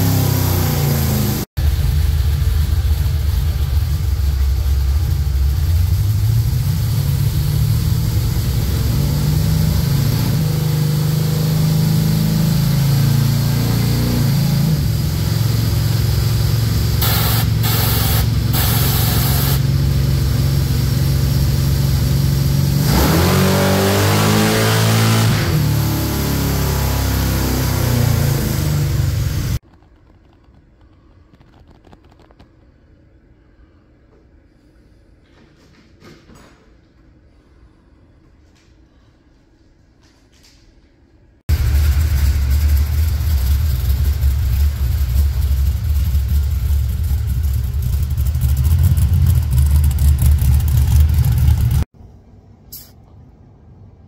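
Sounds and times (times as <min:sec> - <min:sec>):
car engine revving at full throttle: 0:00.0 - 0:29.6.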